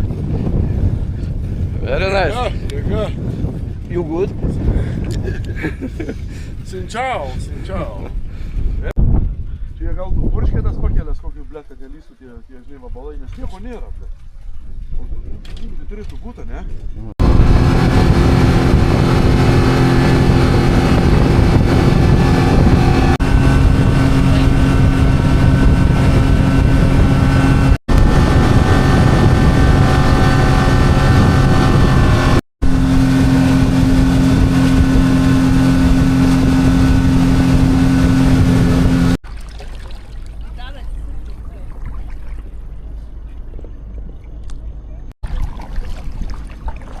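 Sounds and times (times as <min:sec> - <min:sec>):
engine running steadily: 0:17.0 - 0:46.2.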